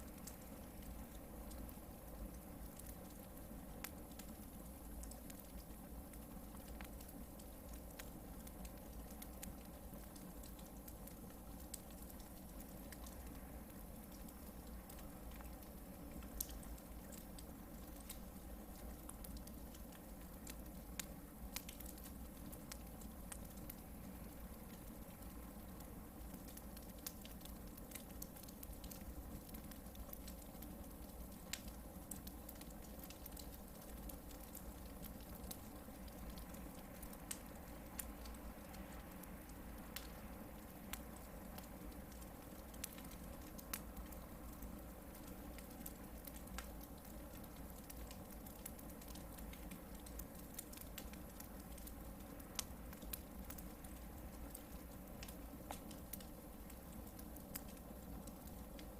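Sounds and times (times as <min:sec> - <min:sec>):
campfire crackling and snapping: 0:00.0 - 0:58.9.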